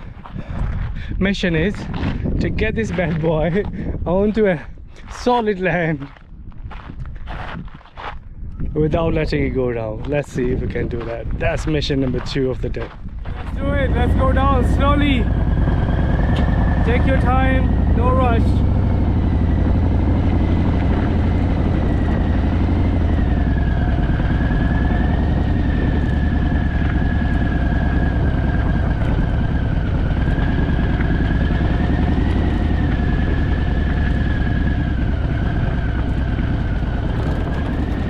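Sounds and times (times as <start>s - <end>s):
motorcycle engine running: 13.2s - 38.0s.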